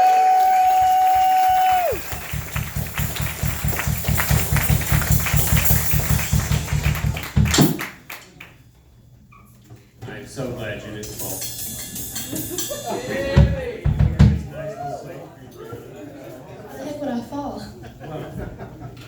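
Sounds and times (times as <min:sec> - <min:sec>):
high whoop: 0:00.0 - 0:02.2
audience applauding: 0:00.0 - 0:08.6.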